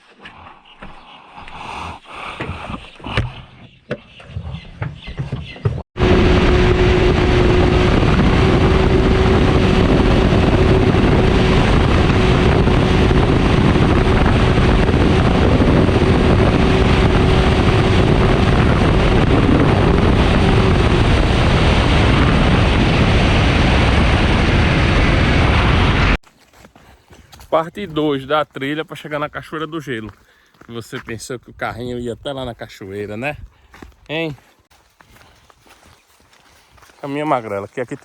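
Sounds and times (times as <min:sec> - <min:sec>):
wind buffeting microphone: 0:04.3 - 0:26.2
loud vehicle engine: 0:06.0 - 0:26.2.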